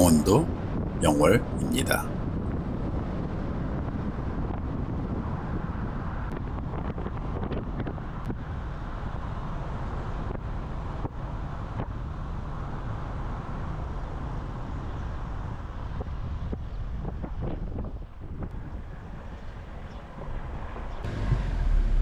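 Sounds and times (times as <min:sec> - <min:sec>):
engine and road noise rumble: 0:20.7 - 0:22.0.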